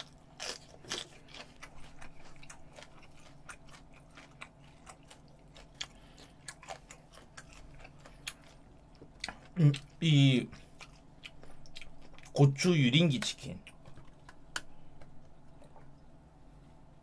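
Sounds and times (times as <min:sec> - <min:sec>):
person crunching chili pepper: 0:00.0 - 0:10.0.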